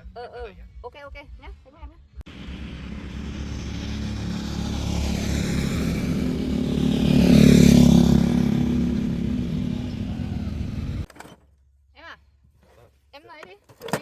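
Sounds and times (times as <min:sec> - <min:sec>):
small vehicle passing by: 0:02.3 - 0:11.1.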